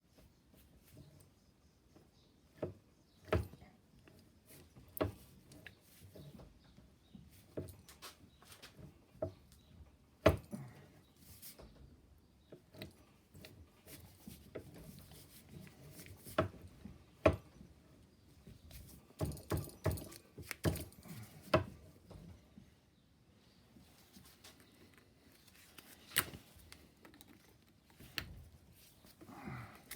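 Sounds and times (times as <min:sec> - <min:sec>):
hard objects clinking and knocking: 0:19.2 - 0:21.2.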